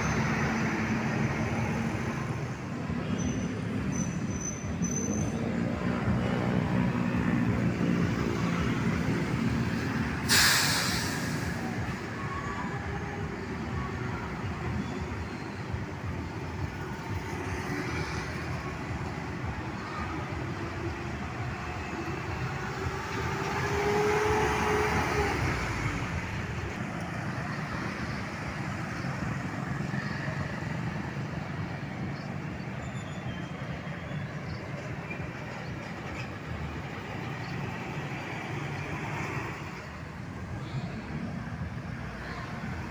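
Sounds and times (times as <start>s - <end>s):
heavy traffic rumbling: 0.0s - 42.9s
air brake hiss: 10.2s - 11.8s.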